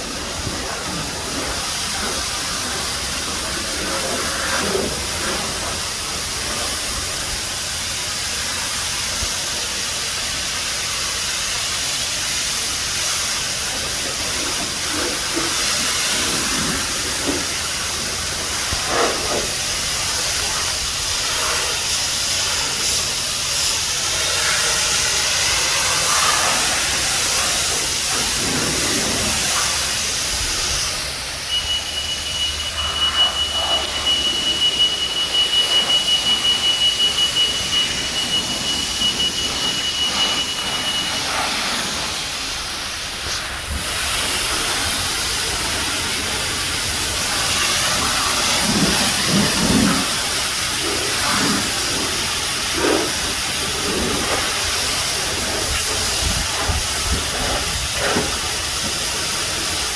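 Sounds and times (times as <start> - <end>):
pressure washer spraying water: 0.0 - 59.9
high-pitched electronic tone: 31.1 - 42.1.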